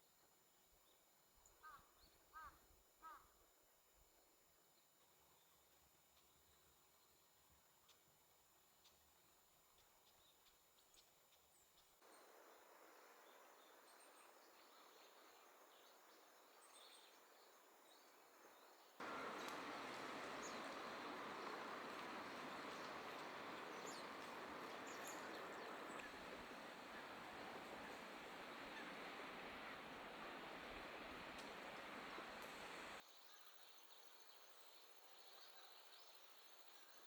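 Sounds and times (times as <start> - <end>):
background hiss: 12.0 - 37.0
small birds chirping: 12.1 - 33.0.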